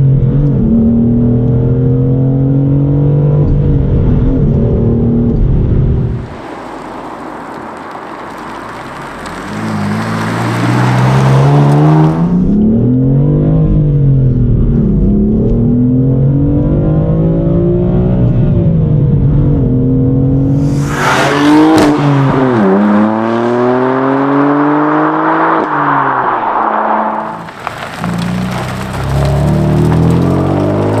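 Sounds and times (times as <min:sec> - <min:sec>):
sharp crack: 0:06.1 - 0:12.3, 0:20.3 - 0:23.4, 0:25.6 - 0:31.0
car engine accelerating through gears: 0:08.4 - 0:31.0.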